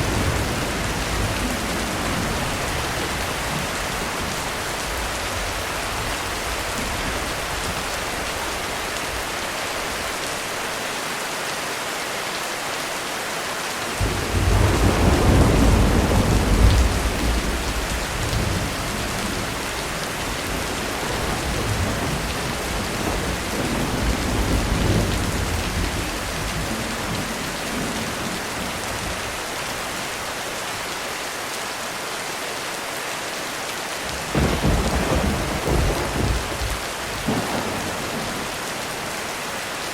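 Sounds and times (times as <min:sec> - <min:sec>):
thunder rumbling: 0:00.0 - 0:08.6, 0:14.0 - 0:29.4, 0:34.1 - 0:39.4
heavy rain on a roof: 0:00.0 - 0:39.9.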